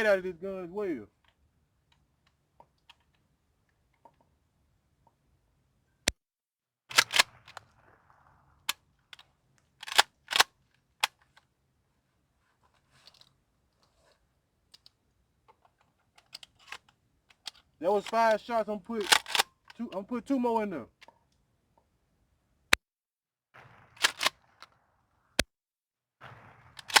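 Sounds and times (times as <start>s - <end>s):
gun handling clicks: 1.2s - 4.3s, 6.9s - 7.6s, 9.0s - 11.5s, 14.7s - 20.0s, 24.0s - 24.7s, 26.8s - 27.0s
shotgun blasts: 6.9s - 9.2s, 23.6s - 25.4s, 26.2s - 27.0s.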